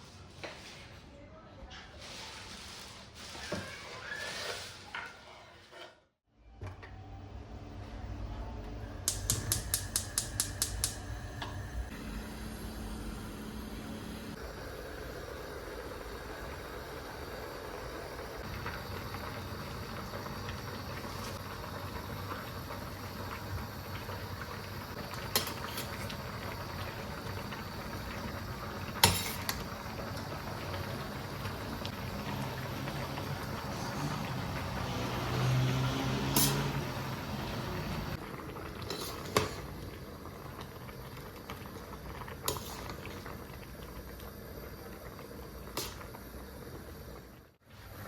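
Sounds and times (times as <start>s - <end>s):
food hissing in a pot: 11.8s - 38.2s.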